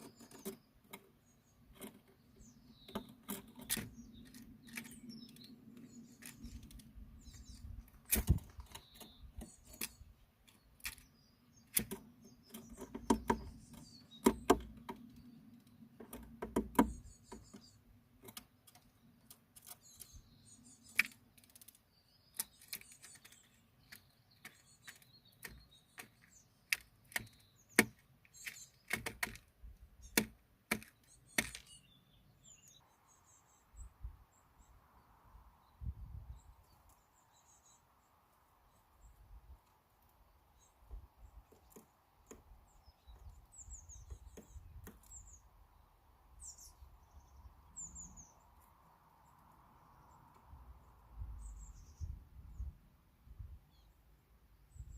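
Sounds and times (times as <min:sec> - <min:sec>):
small birds chirping: 0:00.0 - 0:54.9
sharp taps and clicks: 0:11.7 - 0:15.2, 0:16.0 - 0:19.8, 0:20.9 - 0:31.7.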